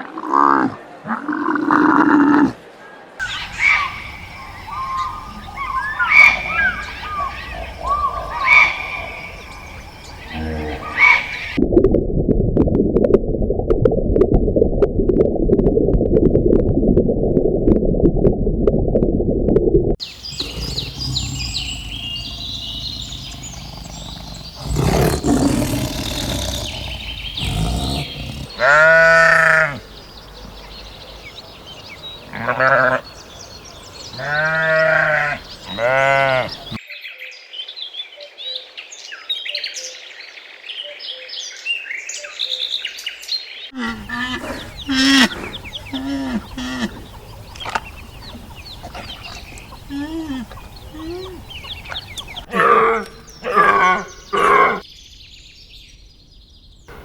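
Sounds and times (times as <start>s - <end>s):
loud animal calls: 3.2s - 9.4s, 20.1s - 29.8s
small birds chirping: 3.2s - 11.6s, 20.0s - 36.8s, 41.1s - 57.0s
farm animals bleating: 24.6s - 29.8s, 32.3s - 33.0s, 34.2s - 36.7s.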